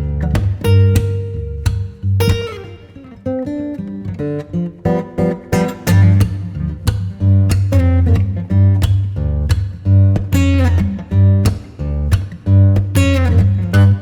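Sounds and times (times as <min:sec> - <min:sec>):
steady bass: 0:00.0 - 0:02.7, 0:05.9 - 0:14.0
acoustic guitar: 0:00.0 - 0:14.0.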